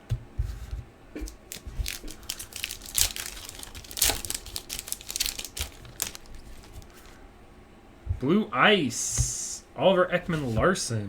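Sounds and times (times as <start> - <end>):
wrapper tearing and crinkling: 1.3 - 7.0.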